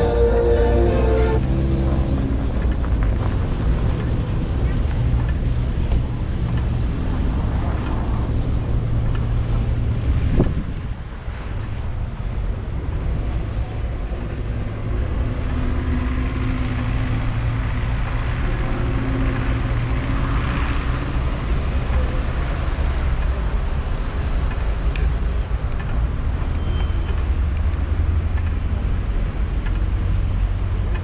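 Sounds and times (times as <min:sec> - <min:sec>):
tyres rolling over snow: 0:00.0 - 0:10.2
wind rumble on microphone: 0:01.1 - 0:31.0.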